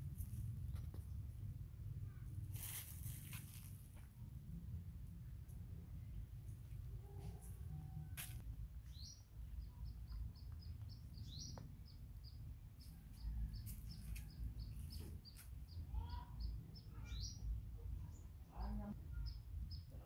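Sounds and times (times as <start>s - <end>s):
small bird chirping: 8.8s - 20.0s.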